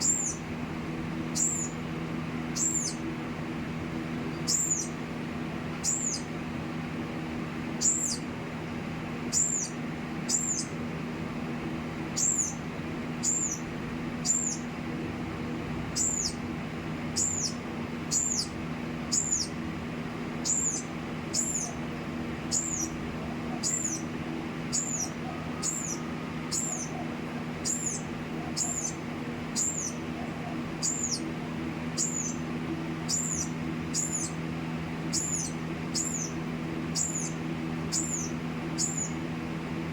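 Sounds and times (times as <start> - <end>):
small bird chirping: 0.0 - 0.5, 1.3 - 1.8, 2.5 - 3.1, 4.2 - 5.0, 5.8 - 6.3, 7.7 - 8.3, 9.3 - 10.8, 12.1 - 14.7, 15.9 - 16.4, 17.1 - 19.6, 20.3 - 24.1, 24.7 - 39.2
steady low hum: 0.0 - 39.9.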